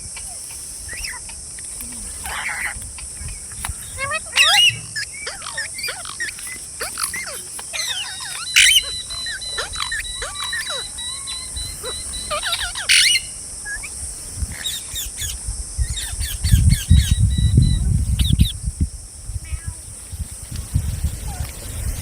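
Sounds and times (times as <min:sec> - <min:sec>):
parrots chirping and chattering: 0:00.0 - 0:18.5
parrot loud shrieks: 0:02.2 - 0:02.8, 0:04.0 - 0:13.3.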